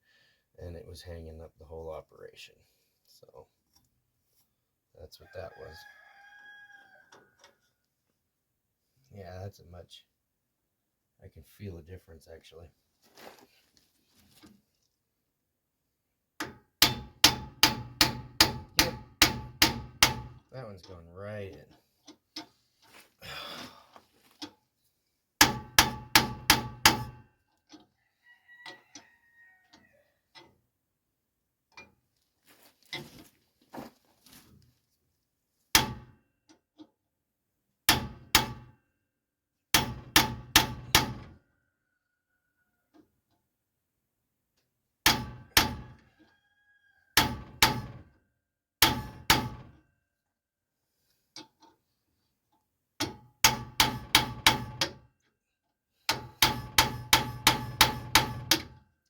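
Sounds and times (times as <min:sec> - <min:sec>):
hammer striking metal: 0:53.4 - 0:54.9, 0:56.1 - 0:58.7.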